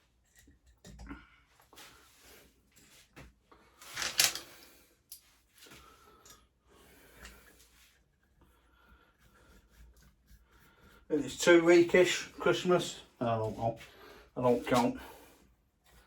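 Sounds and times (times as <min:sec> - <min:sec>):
rustling and handling of parts: 0:00.0 - 0:11.1.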